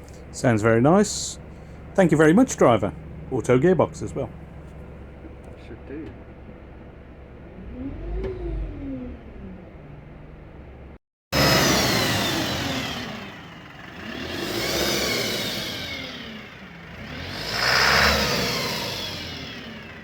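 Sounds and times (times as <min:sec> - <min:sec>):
bus diesel engine revving: 0:07.5 - 0:10.3, 0:11.4 - 0:20.0.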